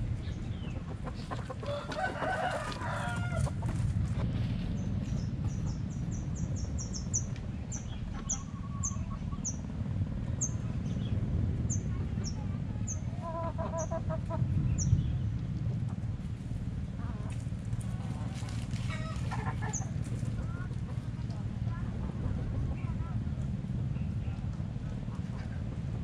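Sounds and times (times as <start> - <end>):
steady low rumble: 0.0 - 26.0
chickens clucking: 0.2 - 4.3, 7.7 - 9.5, 13.1 - 14.6, 17.0 - 23.0
small bird chirping: 4.8 - 9.6.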